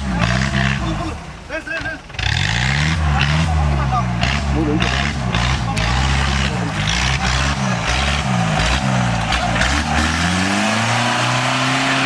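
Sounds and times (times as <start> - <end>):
engine revving hard: 0.0 - 1.2, 2.1 - 12.0.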